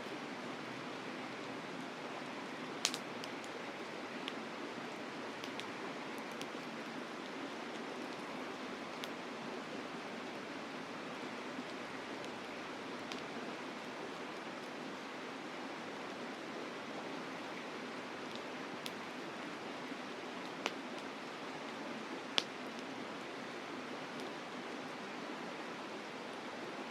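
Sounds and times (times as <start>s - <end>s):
campfire crackling and popping: 2.0s - 9.2s, 11.1s - 14.8s, 17.6s - 23.3s.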